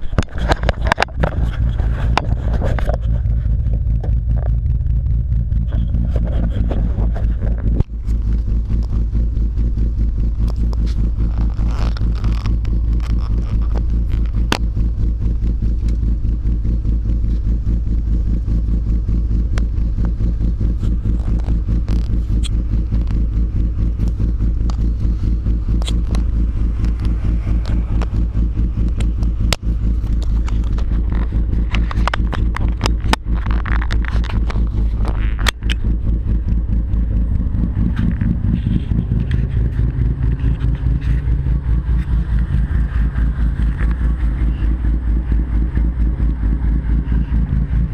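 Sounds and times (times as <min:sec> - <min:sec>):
car exhaust drone: 0:00.0 - 0:47.9
sharp clicks: 0:25.7 - 0:28.2.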